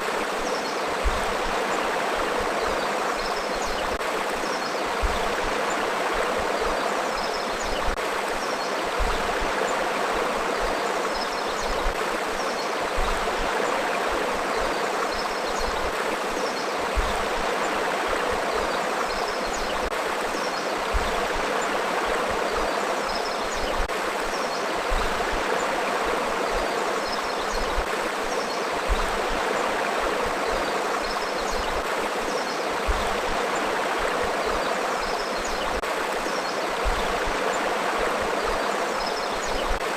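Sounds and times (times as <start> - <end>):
river water flowing over rocks: 0.0 - 39.9
water splashes: 0.0 - 39.9.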